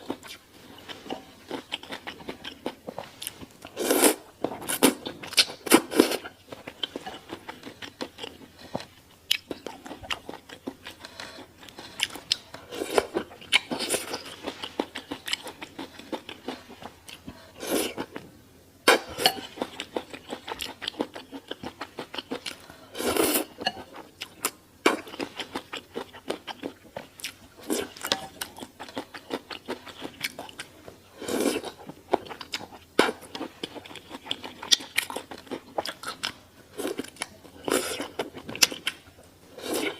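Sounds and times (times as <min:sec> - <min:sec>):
chewing with crunchy bites: 0:00.0 - 0:03.8, 0:04.4 - 0:18.2, 0:19.2 - 0:39.9.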